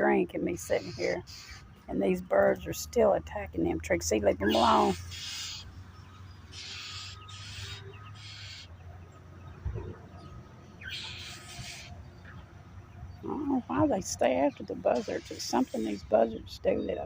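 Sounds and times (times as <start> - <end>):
birds giving raspy hissing calls: 0.6 - 1.8, 4.5 - 5.8, 6.4 - 8.8, 10.8 - 12.1, 14.4 - 16.4.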